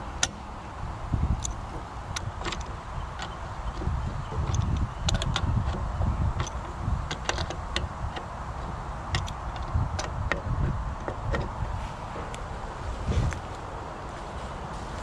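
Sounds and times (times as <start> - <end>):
wrench clicking on metal: 1.4 - 8.3, 9.1 - 11.5.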